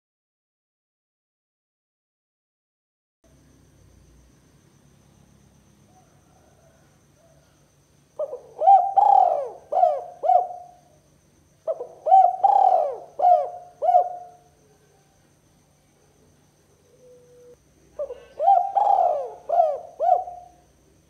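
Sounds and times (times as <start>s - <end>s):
dove cooing: 8.2s - 11.0s, 11.6s - 15.1s, 16.1s - 20.7s.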